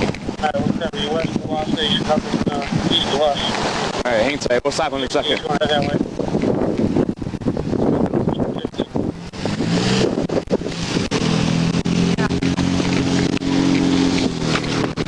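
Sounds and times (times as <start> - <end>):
knocks and rubbing on microphone: 0.0 - 4.0, 5.2 - 8.6
vehicle engine running: 0.0 - 4.2, 5.0 - 15.0.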